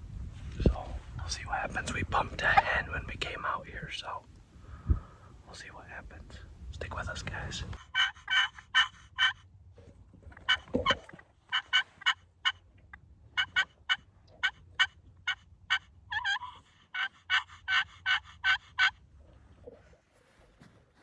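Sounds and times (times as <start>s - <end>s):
turkey yelping: 7.8s - 9.5s, 10.3s - 19.0s.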